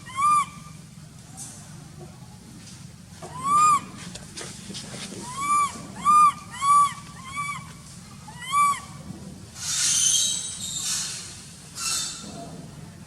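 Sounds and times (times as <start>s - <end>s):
baby monkey crying: 0.0s - 0.8s, 3.3s - 4.0s, 5.2s - 9.0s.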